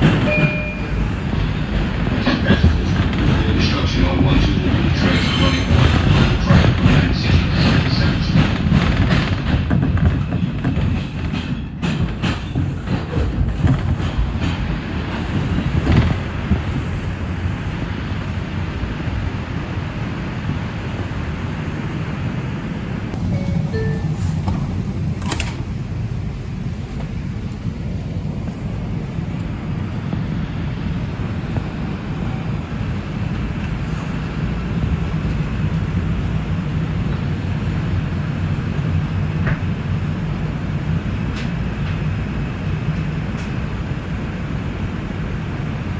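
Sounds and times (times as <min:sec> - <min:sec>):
wheels clacking over rail joints: 0:00.0 - 0:16.8
subway train rumble: 0:00.0 - 0:45.9.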